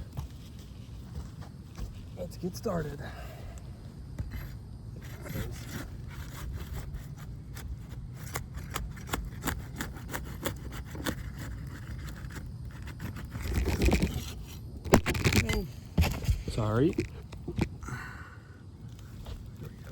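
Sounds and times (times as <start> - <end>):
crowbar scraping roof shingles: 4.2 - 17.8.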